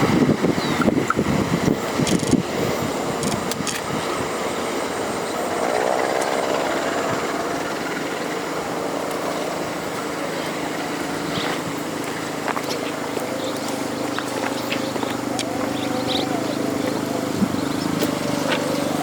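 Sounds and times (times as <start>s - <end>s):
rail and wheel noise: 0.0s - 19.0s
train engine drone: 0.0s - 19.0s.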